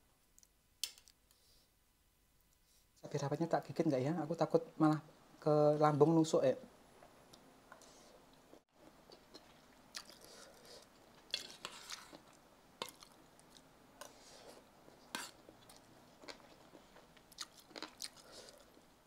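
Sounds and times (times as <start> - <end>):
faint chewing: 7.0 - 18.9.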